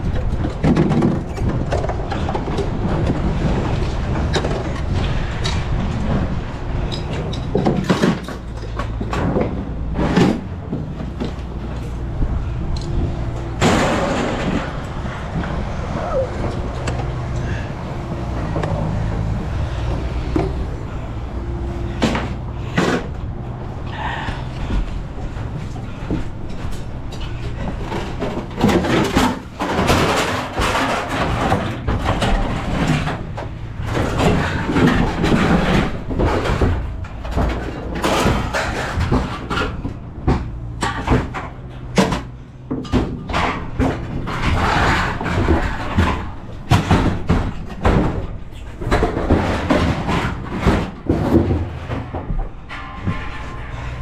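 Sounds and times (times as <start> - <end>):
low engine hum: 0.0 - 54.0
scrap metal clanking: 0.2 - 54.0.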